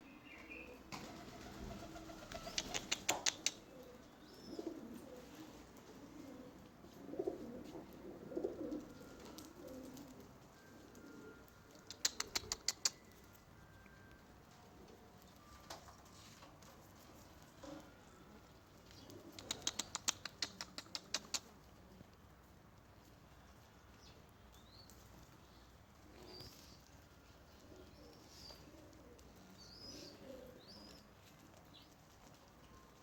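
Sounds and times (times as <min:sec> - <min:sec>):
bird low calls: 0:00.0 - 0:04.8.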